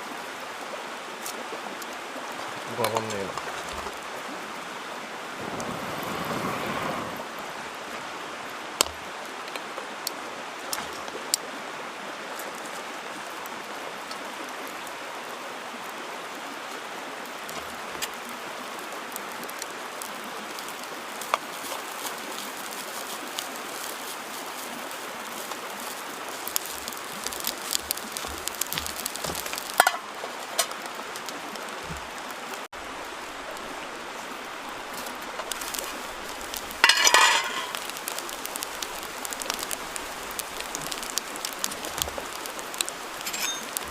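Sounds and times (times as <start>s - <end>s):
mountain stream rushing: 0.0s - 43.9s.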